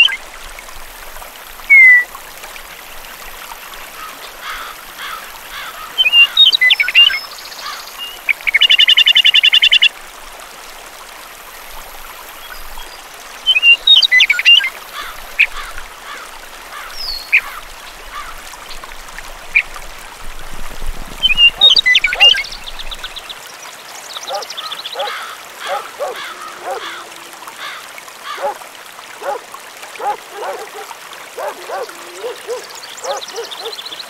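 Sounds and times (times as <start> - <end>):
bird trill: 1.7 - 2.0
birds chirping: 1.7 - 2.1, 21.2 - 23.4, 24.0 - 28.6, 29.2 - 29.4, 30.0 - 34.0.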